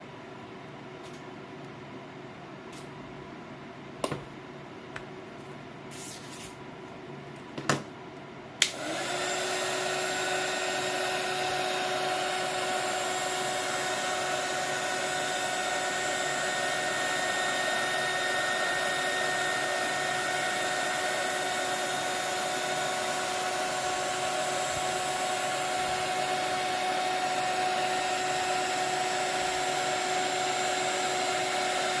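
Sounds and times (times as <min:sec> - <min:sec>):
electric blower motor whining: 0:08.6 - 0:32.0.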